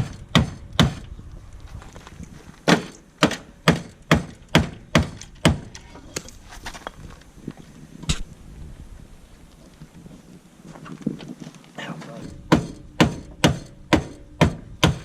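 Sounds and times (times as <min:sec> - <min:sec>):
hammer blows on sheet metal: 0:12.2 - 0:15.0.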